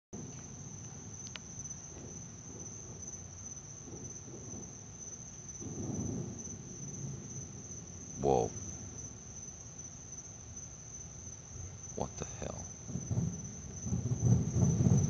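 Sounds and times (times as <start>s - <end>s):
insects trilling: 0.2s - 15.0s
low uneven rumble: 12.0s - 15.0s.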